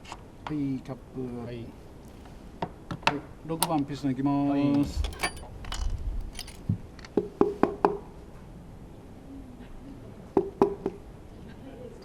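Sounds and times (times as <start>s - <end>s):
metallic clicks of engine parts: 3.6s - 4.0s, 4.7s - 7.2s.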